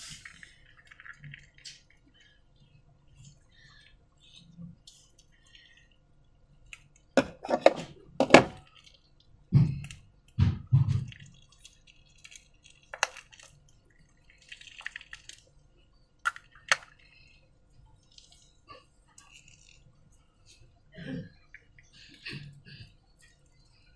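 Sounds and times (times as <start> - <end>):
wet sticky slime squelching: 0.0 - 7.2, 7.9 - 20.7.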